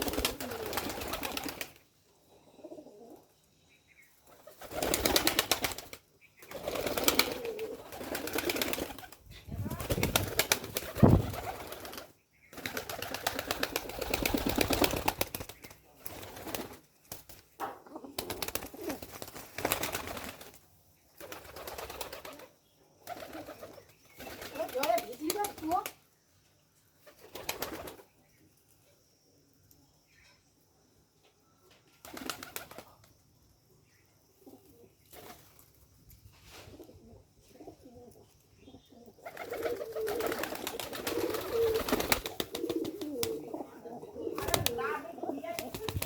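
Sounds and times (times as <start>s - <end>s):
pigeons calling: 0.0s - 1.8s, 3.9s - 20.6s, 36.7s - 46.0s
wings fluttering: 0.0s - 1.8s, 4.3s - 20.6s, 21.2s - 26.0s, 27.0s - 28.1s, 31.9s - 33.1s, 35.0s - 36.9s, 39.2s - 43.6s, 44.2s - 46.0s.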